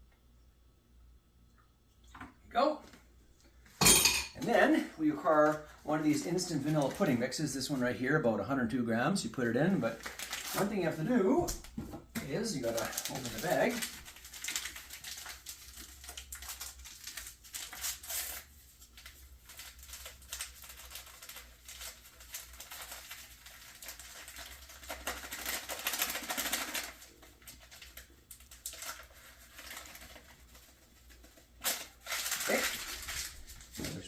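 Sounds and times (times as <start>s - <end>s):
bag crinkling and rustling: 9.8s - 11.2s, 12.2s - 34.0s.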